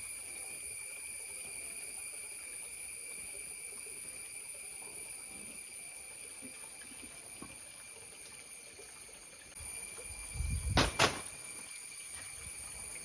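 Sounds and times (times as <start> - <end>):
chorus of insects: 0.0 - 13.0
sharp knocks: 10.8 - 11.3.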